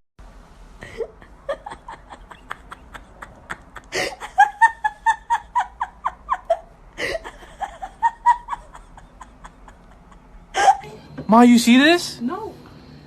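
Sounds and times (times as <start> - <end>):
person laughing: 0.8 - 11.0.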